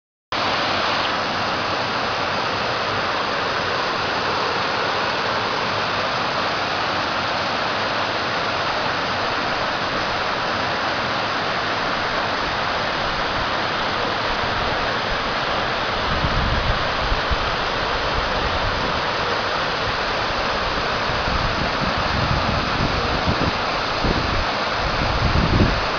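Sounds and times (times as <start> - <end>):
waterfall rushing: 0.4 - 25.9
wind thumps on microphone: 21.1 - 25.9.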